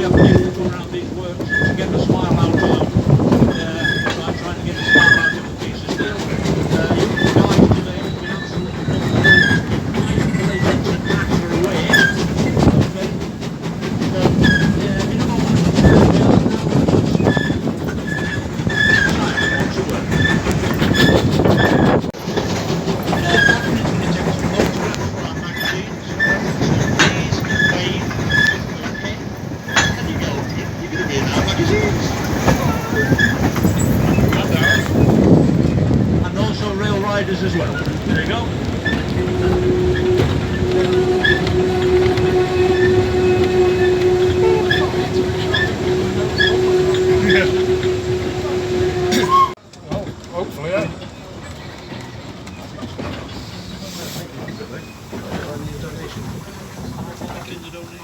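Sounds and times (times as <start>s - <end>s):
high wheel squeals: 0.0s - 13.2s, 14.0s - 22.1s, 22.9s - 35.8s, 36.4s - 49.6s, 51.0s - 58.0s
rumble of wheels on rail: 0.0s - 58.0s.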